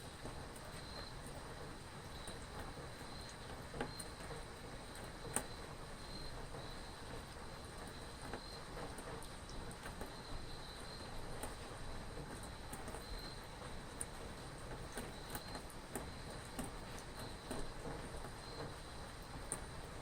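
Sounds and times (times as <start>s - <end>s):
light rain pattering: 0.0s - 20.0s
sharp water drips: 0.2s - 20.0s
cricket chirping: 13.0s - 13.4s.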